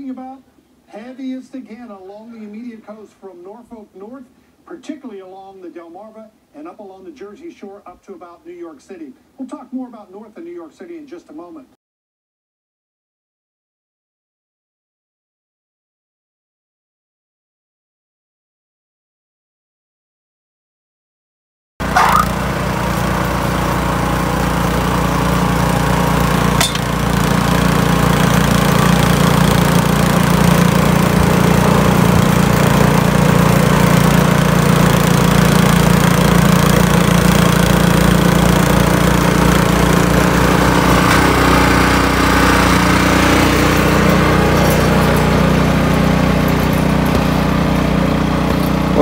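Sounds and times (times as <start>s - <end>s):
small engine running steadily: 21.8s - 49.0s.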